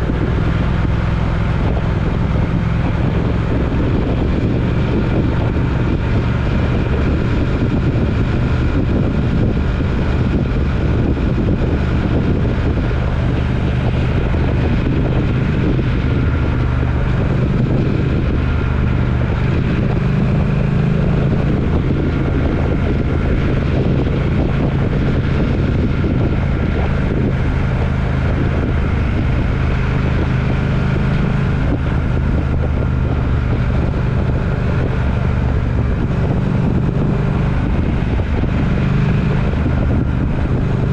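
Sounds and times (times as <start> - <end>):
road and wind noise: 0.0 - 40.9
vehicle engine drone: 0.0 - 40.9.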